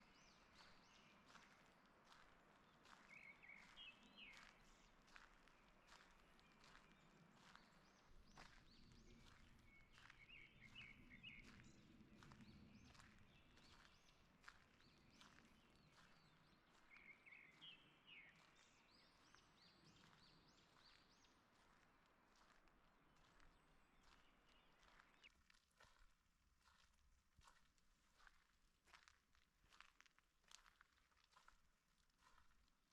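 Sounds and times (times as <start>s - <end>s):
faint songbirds chirping: 0.0s - 26.9s
footsteps on forest path: 0.2s - 32.7s.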